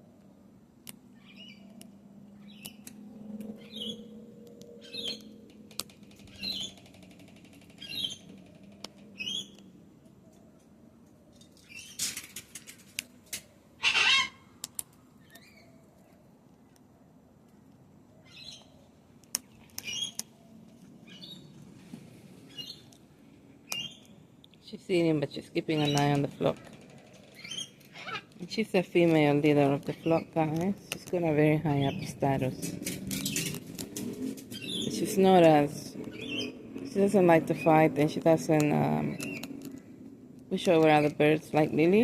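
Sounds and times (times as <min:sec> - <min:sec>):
high bird calls: 0:01.2 - 0:08.4, 0:13.8 - 0:14.5, 0:19.4 - 0:20.4, 0:27.1 - 0:28.4, 0:34.4 - 0:35.3, 0:36.1 - 0:36.6
cockatoo crunching food: 0:25.8 - 0:41.6.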